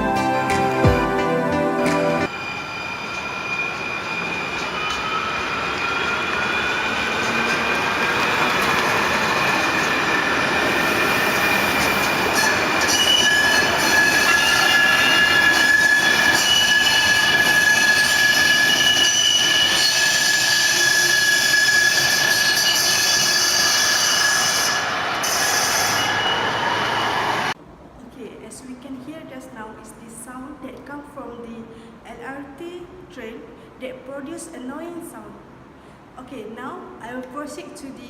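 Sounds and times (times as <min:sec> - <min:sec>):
train rumbling: 0:00.0 - 0:27.6.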